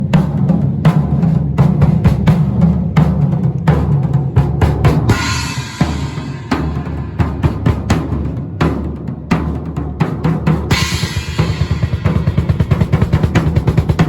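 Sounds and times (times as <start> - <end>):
snare and bass drum strikes: 0.0 - 14.0
cymbal crash: 5.1 - 8.2, 10.7 - 13.5.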